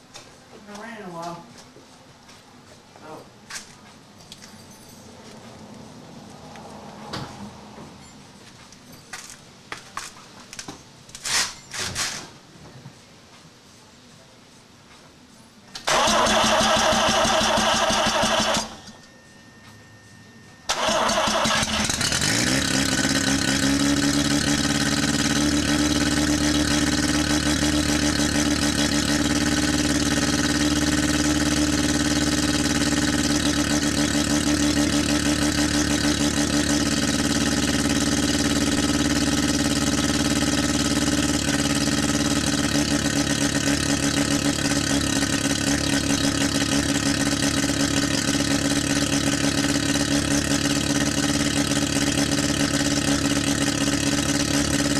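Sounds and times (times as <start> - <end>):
rotary engine idling: 20.7 - 54.9.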